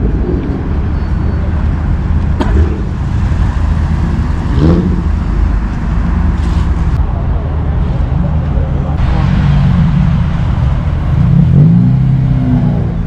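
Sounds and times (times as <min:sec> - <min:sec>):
car engines rumbling: 0:00.0 - 0:13.0.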